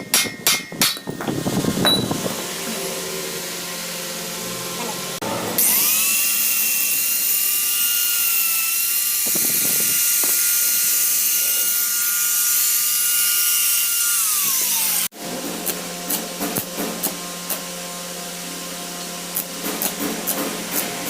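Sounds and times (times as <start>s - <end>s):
electric power tool whining: 1.2s - 15.1s.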